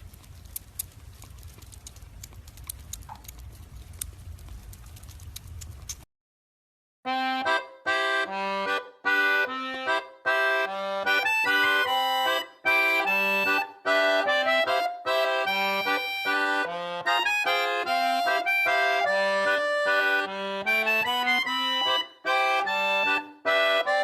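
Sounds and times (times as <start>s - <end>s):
accordion playing bouncy tune: 7.1s - 24.0s.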